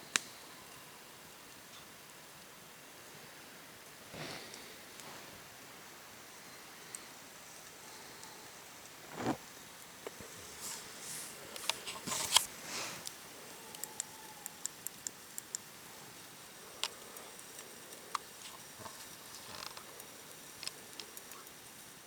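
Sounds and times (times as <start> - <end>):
low hiss: 0.0 - 22.0
brief rustle: 10.5 - 13.1
sharp clicks and pops: 13.8 - 15.7.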